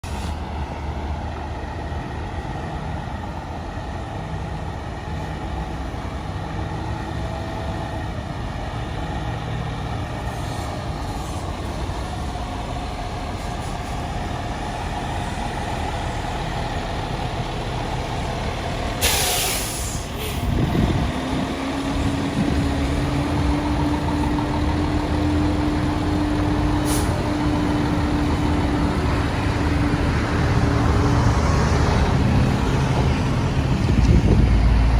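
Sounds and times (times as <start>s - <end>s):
air brake hiss: 0.0s - 0.4s, 10.3s - 11.5s, 19.0s - 20.6s, 26.8s - 27.3s
diesel truck engine idling: 0.4s - 34.4s.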